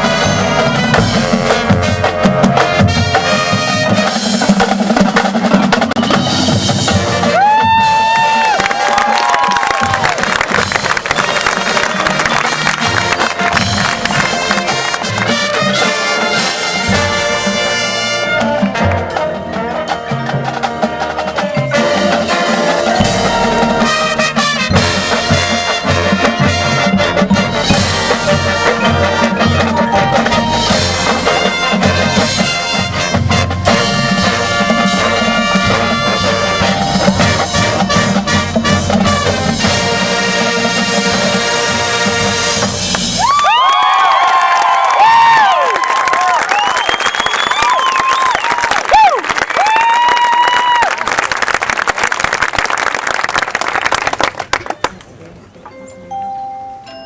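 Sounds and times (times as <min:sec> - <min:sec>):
brass band playing: 0:00.0 - 0:43.6
drumline percussion: 0:00.0 - 0:54.9.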